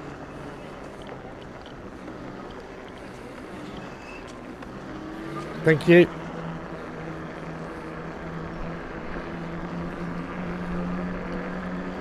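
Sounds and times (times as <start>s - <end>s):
electric bike motor humming: 0.0s - 12.0s
wind and tyre rumble: 0.0s - 12.0s.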